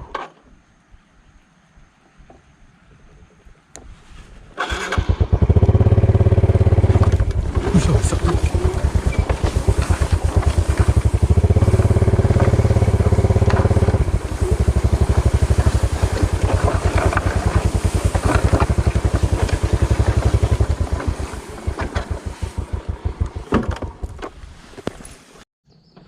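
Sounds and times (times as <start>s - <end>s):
small motorbike engine: 4.6s - 24.4s
bike knocking and rattling: 5.2s - 25.2s.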